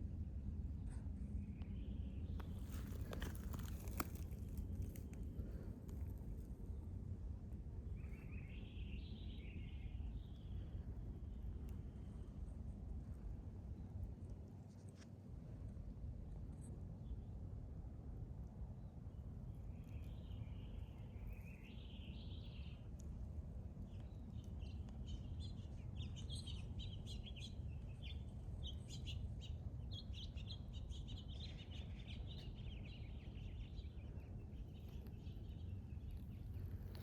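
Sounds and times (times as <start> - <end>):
steady low rumble: 0.0 - 37.0
small birds chirping: 1.4 - 5.7, 19.5 - 22.9, 23.8 - 37.0.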